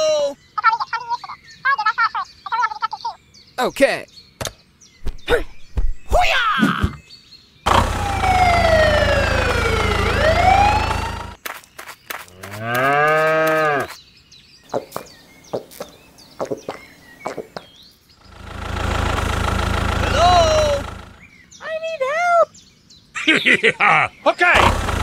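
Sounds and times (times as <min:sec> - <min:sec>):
tractor engine rumbling: 0:07.7 - 0:11.4, 0:18.2 - 0:21.3, 0:24.6 - 0:25.0
cow mooing: 0:12.5 - 0:13.9.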